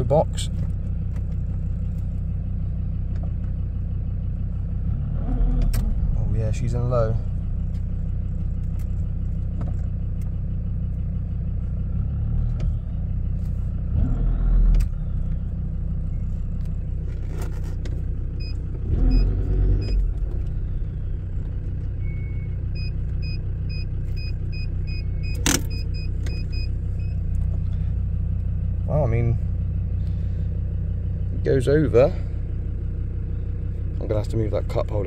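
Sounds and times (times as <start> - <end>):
engine idling inside cab: 0.0 - 35.0
lever linkage clunks: 25.3 - 26.5.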